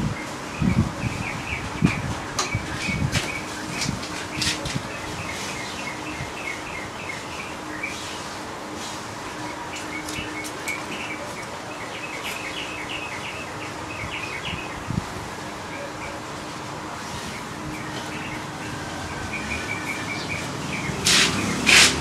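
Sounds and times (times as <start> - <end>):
small birds chirping: 9.4 - 15.1.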